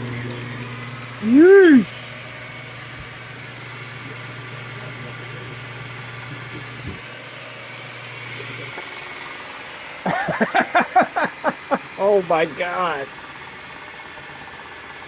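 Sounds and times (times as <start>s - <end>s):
lathe running with low hum: 0.0s - 15.0s
person's voice: 1.2s - 2.0s, 10.8s - 13.1s.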